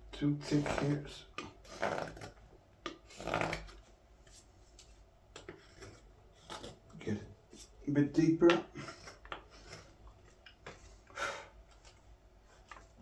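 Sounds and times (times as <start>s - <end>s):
knife scraping wood: 5.4s - 6.8s, 8.6s - 10.9s.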